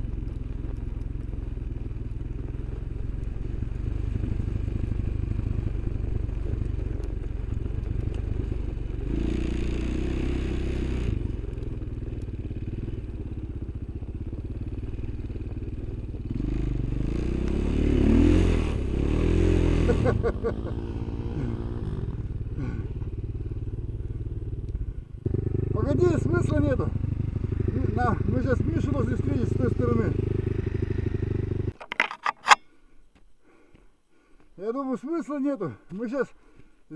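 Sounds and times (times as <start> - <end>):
off-road vehicle engine revving: 0.0 - 13.5, 14.6 - 31.8.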